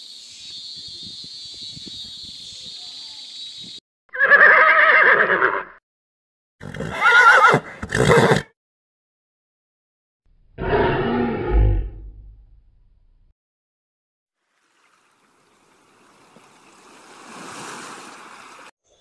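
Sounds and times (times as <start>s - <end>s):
loud animal calls: 10.6s - 12.0s.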